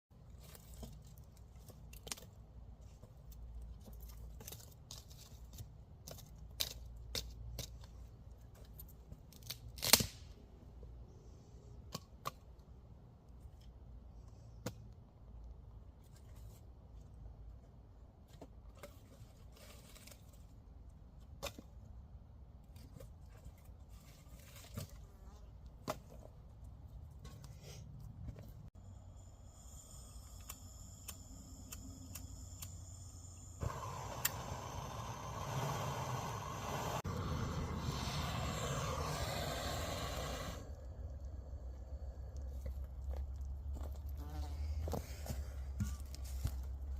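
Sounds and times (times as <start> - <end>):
low steady rumble: 27.9 - 46.9
campfire crackling and popping: 33.6 - 40.6
loud fire crack: 33.6 - 40.6.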